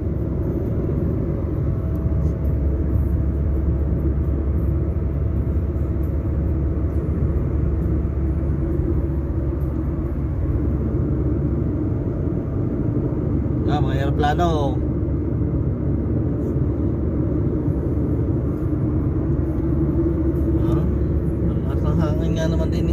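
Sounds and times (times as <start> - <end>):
car driving on road: 0.0 - 22.9
strong wind: 6.8 - 13.8.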